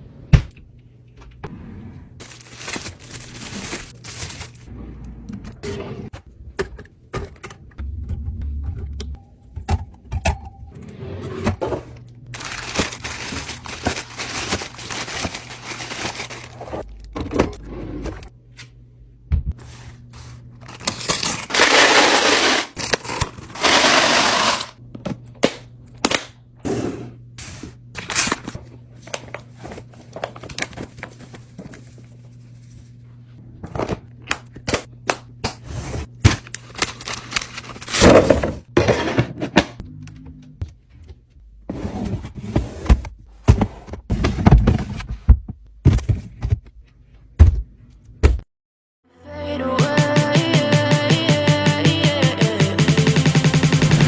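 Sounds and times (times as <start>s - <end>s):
packaging rustling: 2.2s - 4.7s, 12.4s - 16.8s, 20.6s - 24.7s, 36.6s - 38.0s.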